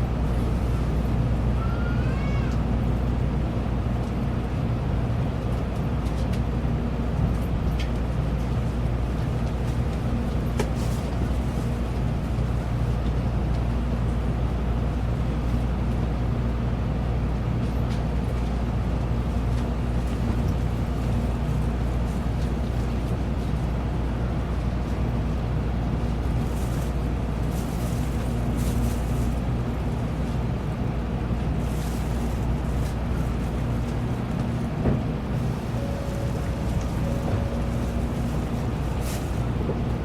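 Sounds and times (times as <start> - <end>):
train cabin rumble: 0.0 - 40.0
low steady hum: 34.6 - 40.0.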